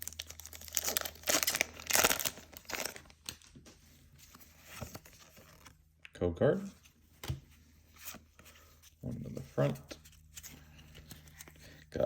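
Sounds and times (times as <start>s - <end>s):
foil wrapper tearing and crinkling: 0.0s - 3.1s.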